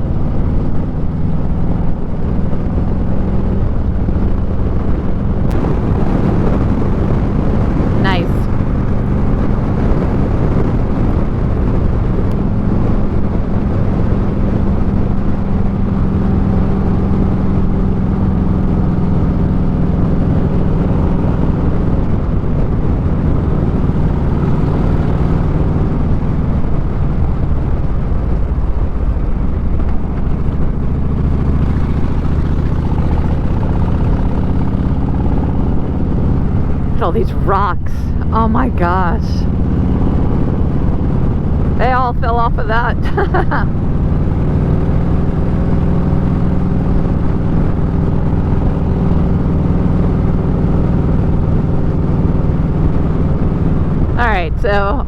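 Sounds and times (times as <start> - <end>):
motorcycle engine running: 0.0 - 55.0
wind noise: 0.0 - 55.0.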